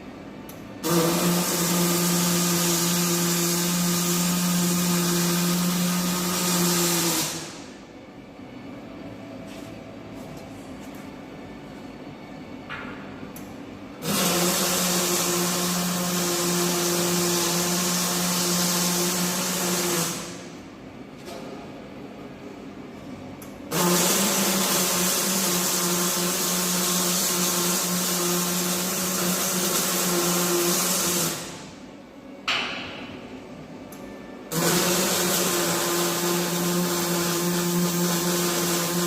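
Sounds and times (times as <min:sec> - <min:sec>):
steady hum: 0:00.0 - 0:39.0
arc welding crackling hiss: 0:00.8 - 0:07.7, 0:14.0 - 0:20.5, 0:23.7 - 0:31.7, 0:34.5 - 0:39.0.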